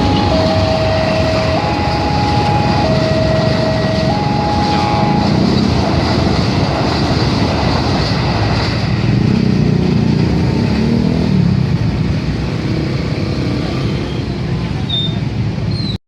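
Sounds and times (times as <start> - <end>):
train rumbling at speed: 0.0 - 16.0.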